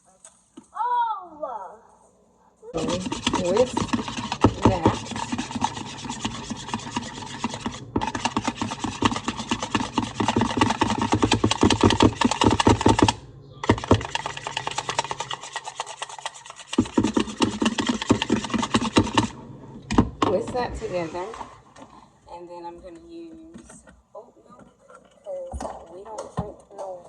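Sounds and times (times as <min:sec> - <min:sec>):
whisk beating eggs in bowl: 0:02.7 - 0:21.2.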